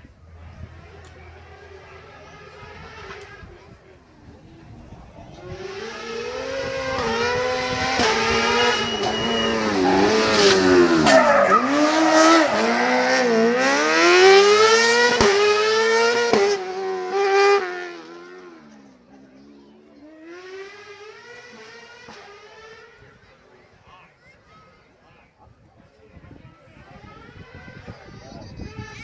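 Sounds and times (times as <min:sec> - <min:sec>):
exhaust bangs: 0:00.0 - 0:17.2
rally car engine revving: 0:00.0 - 0:23.1.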